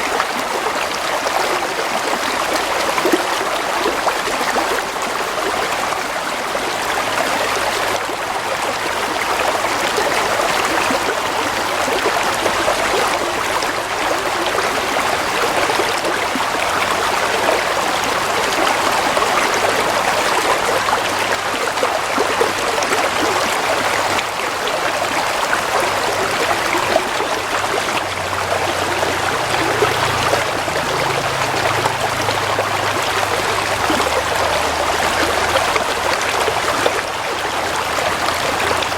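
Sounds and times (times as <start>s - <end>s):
stream water trickling: 0.0s - 38.9s.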